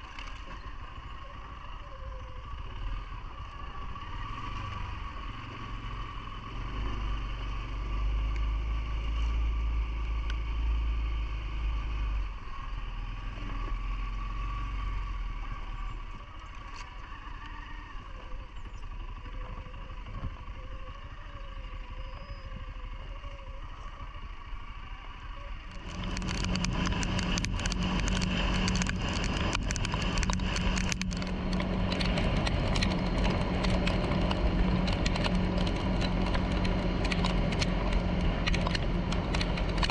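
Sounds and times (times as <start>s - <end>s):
quad bike engine running: 0.0s - 39.9s
rushing crackling noise: 25.6s - 39.9s.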